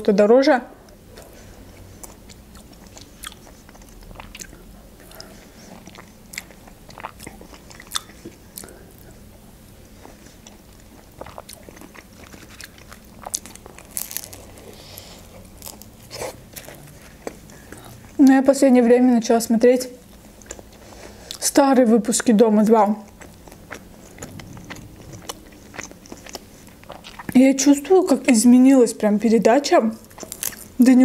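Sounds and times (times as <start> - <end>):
chewing with wet mouth clicks: 0.9 - 9.2, 10.0 - 18.4, 20.1 - 21.4, 23.0 - 27.4, 30.0 - 30.7
biting into a wrap: 10.8 - 18.0, 30.0 - 30.8.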